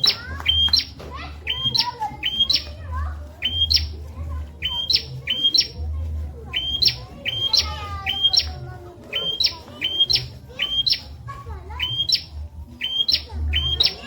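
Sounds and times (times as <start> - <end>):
bird singing sharp calls: 0.0 - 14.0.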